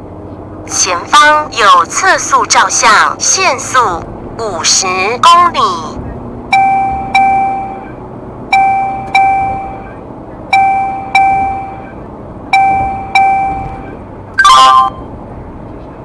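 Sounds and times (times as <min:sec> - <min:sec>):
road noise: 0:00.0 - 0:16.0
electronic ding tones: 0:06.5 - 0:12.0, 0:12.6 - 0:15.0.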